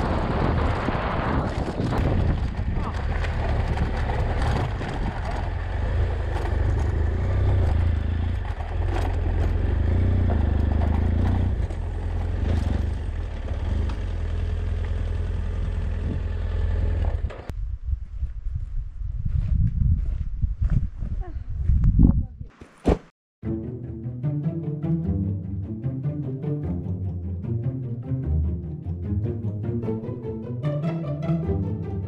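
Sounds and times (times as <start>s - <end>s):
motorcycle engine running: 0.0s - 17.5s.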